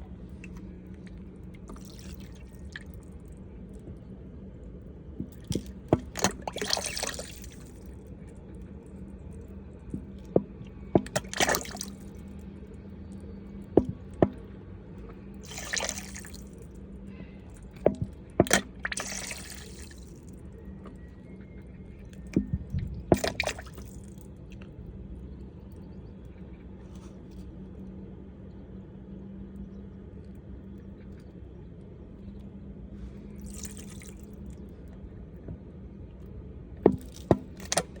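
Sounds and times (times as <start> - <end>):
steady low hum: 0.0 - 38.0
water splashing and dripping: 0.3 - 3.4, 5.2 - 8.0, 9.9 - 12.3, 15.4 - 16.7, 17.6 - 21.0, 22.2 - 24.3, 33.4 - 34.4, 36.9 - 38.0.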